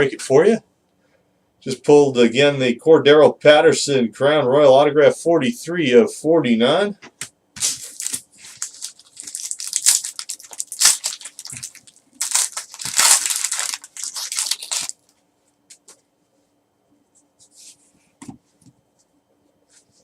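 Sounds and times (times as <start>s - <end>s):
wrapper tearing and crinkling: 7.6s - 15.1s.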